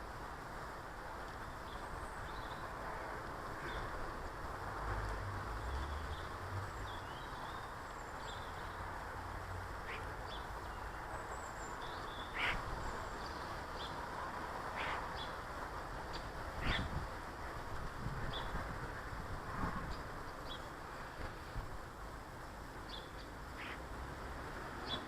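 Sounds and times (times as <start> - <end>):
birds chirping: 5.4 - 15.5, 16.1 - 17.0, 22.8 - 23.9, 24.8 - 25.0
harsh falling bird calls: 9.8 - 14.0, 16.1 - 16.9.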